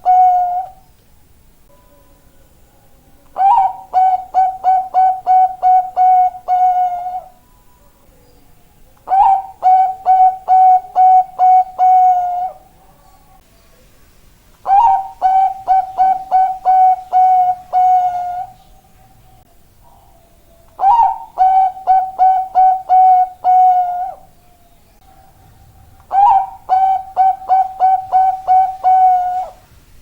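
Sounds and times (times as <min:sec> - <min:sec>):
dove cooing: 0:00.0 - 0:00.8, 0:03.3 - 0:07.4, 0:09.0 - 0:13.3, 0:14.6 - 0:18.6, 0:19.8 - 0:29.7.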